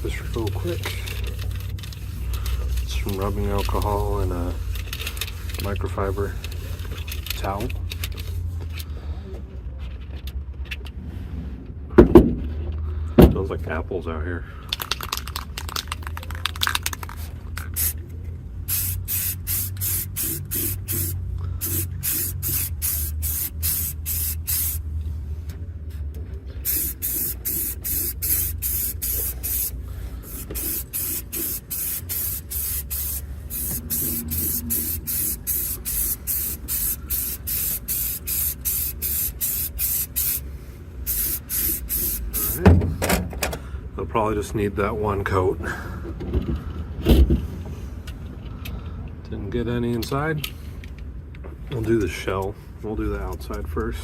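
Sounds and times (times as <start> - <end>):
spray paint hissing: 0.0 - 7.2, 15.7 - 18.0, 18.6 - 24.9, 26.6 - 42.6
steady low hum: 16.9 - 49.8.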